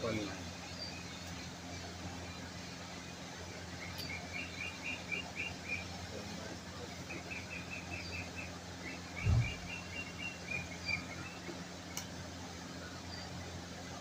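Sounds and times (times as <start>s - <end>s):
steady low hum: 0.0s - 14.0s
small bird chirping: 0.6s - 2.5s, 3.5s - 6.0s, 7.0s - 12.1s.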